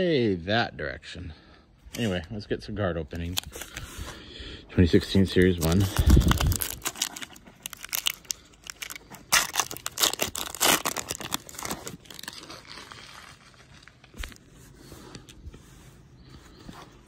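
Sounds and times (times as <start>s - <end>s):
wrapper tearing and crinkling: 5.4s - 14.4s.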